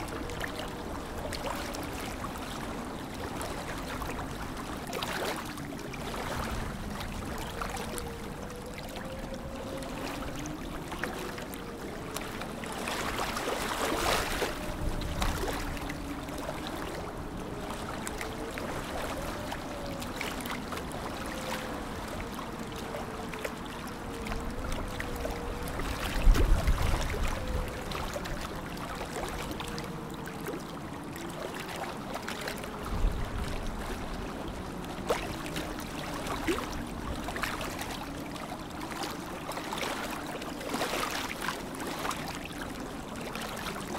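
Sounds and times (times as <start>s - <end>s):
water lapping and splashing: 0.0s - 43.9s
faint wavering tone: 5.0s - 31.7s.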